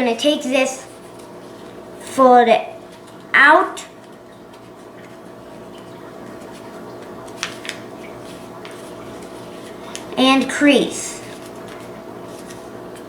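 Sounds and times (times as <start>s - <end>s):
paper rustling: 0.9s - 2.2s, 2.8s - 3.3s, 3.9s - 13.0s
paper crinkles: 2.8s - 3.3s, 4.0s - 13.0s.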